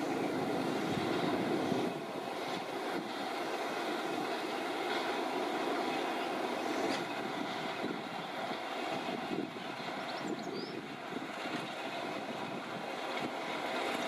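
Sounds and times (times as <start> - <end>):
wind noise on microphone: 0.0 - 3.4, 6.7 - 14.0
train rumbling: 0.0 - 14.0
bird chirping: 10.1 - 10.8.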